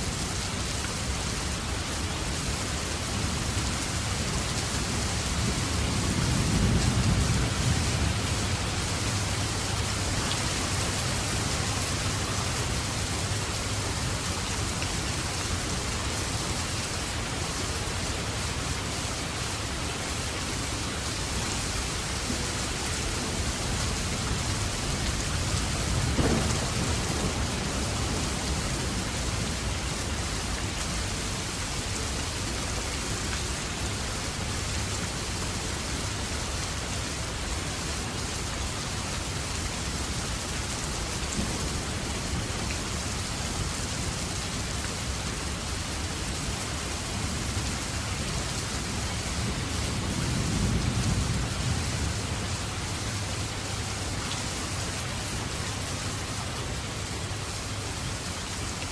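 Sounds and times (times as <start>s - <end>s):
steady rain falling: 0.0s - 58.9s
low rumble of thunder: 4.7s - 13.6s, 22.2s - 31.4s, 48.8s - 53.4s.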